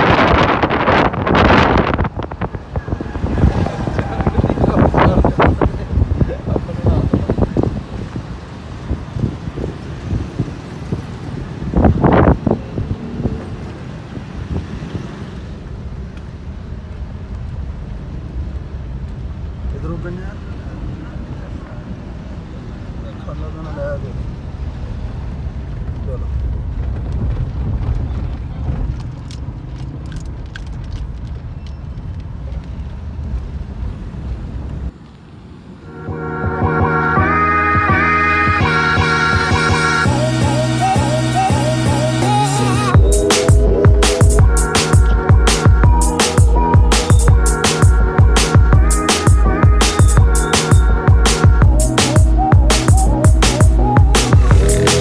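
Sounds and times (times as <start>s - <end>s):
steady low rumble: 0.0s - 9.4s, 24.2s - 55.0s
wind buffeting microphone: 0.0s - 23.0s, 24.2s - 35.0s
music: 35.9s - 55.0s.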